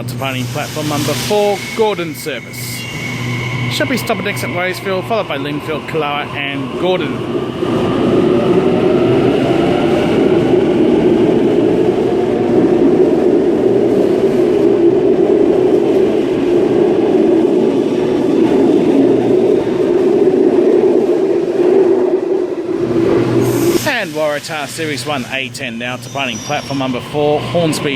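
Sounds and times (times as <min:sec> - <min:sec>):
electric train rumbling: 0:00.0 - 0:27.9.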